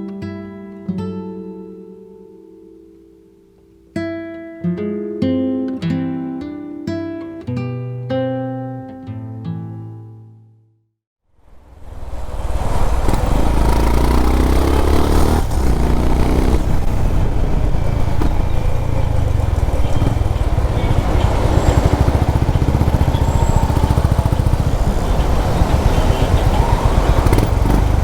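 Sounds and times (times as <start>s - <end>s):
motorcycle engine accelerating: 11.8s - 28.0s.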